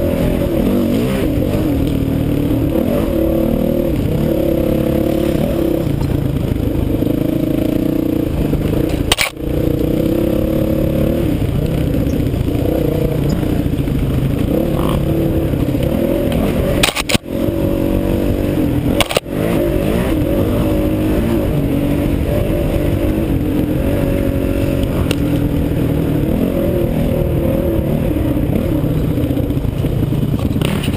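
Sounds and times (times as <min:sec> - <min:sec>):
motorcycle engine revving: 0:00.0 - 0:30.9
rattling and scraping over ground: 0:04.8 - 0:27.1, 0:28.8 - 0:30.9.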